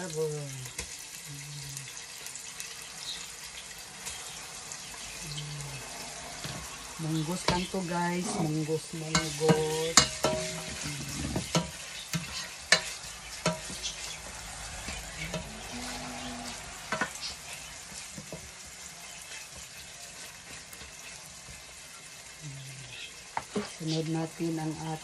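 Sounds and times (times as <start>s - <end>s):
food sizzling in a pot: 0.0s - 25.0s
spoon scraping and knocking a pot: 9.1s - 14.2s, 14.8s - 16.1s, 16.9s - 17.3s.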